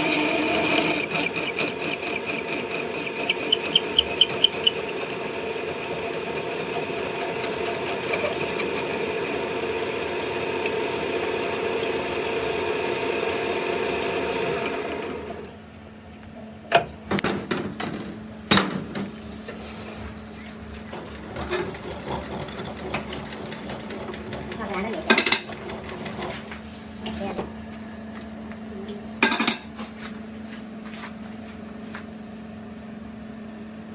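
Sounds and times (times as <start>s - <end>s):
machine whining: 0.0s - 15.5s.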